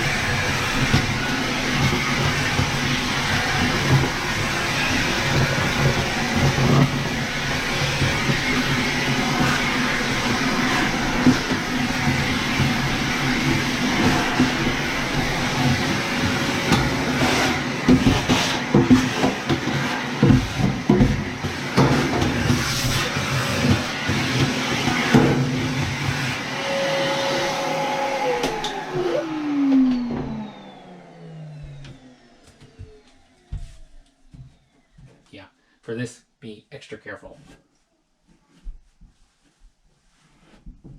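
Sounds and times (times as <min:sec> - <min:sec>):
vacuum motor winding down: 0:00.0 - 0:34.9
vacuum cleaner running: 0:00.0 - 0:35.2
knocks and rattles from hose: 0:05.3 - 0:26.0.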